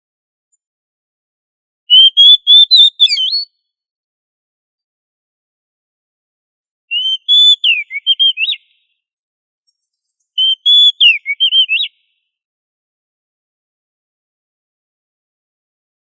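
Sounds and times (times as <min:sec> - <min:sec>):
bird singing whistled phrases: 0:01.9 - 0:03.6, 0:06.9 - 0:08.9, 0:10.1 - 0:12.2.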